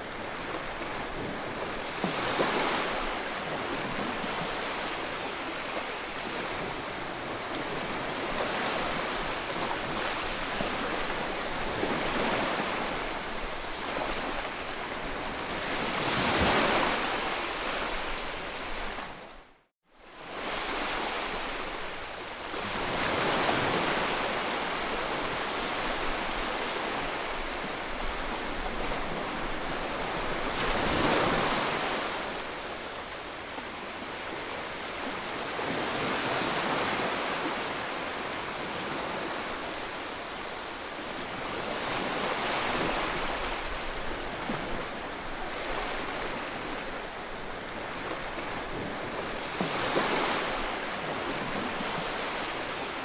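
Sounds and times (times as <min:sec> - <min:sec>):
ocean waves breaking on shore: 0:00.0 - 0:53.0.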